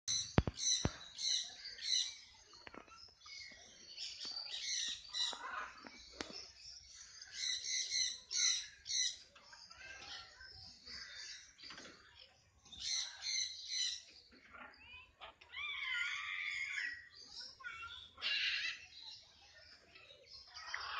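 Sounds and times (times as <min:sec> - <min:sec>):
sharp clicks: 0:00.1 - 0:01.0
parrots chirping and squawking: 0:00.1 - 0:06.5, 0:07.2 - 0:11.6, 0:12.8 - 0:19.0, 0:20.5 - 0:20.9.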